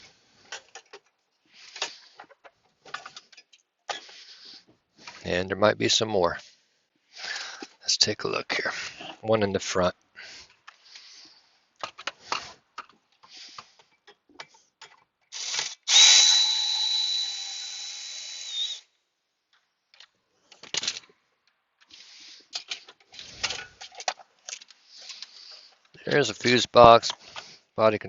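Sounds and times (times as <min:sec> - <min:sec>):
parts and tools clattering: 0:00.0 - 0:04.1, 0:11.8 - 0:16.0, 0:19.9 - 0:21.2, 0:21.8 - 0:26.4
cordless drill whining: 0:15.3 - 0:18.9.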